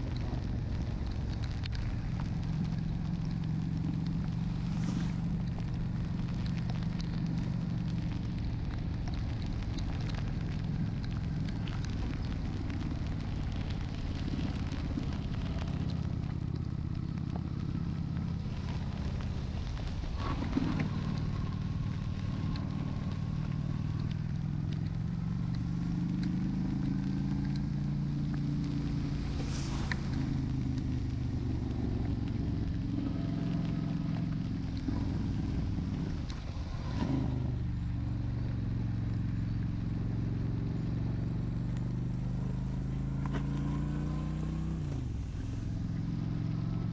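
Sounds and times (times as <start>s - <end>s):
motorcycle engine running: 0.0s - 46.9s
wind and rain spray hiss: 0.6s - 24.5s, 26.4s - 37.6s.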